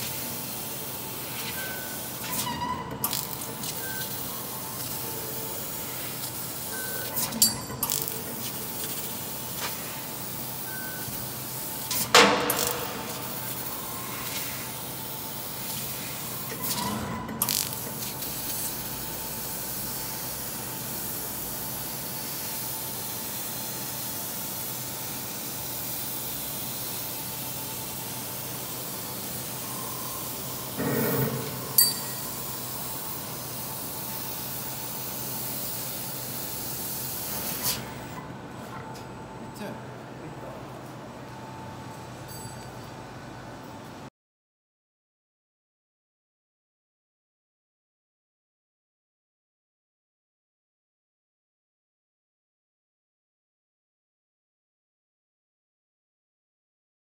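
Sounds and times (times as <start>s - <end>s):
sharp knocks and clinks: 7.4s - 7.9s, 30.8s - 32.4s, 42.0s - 42.9s.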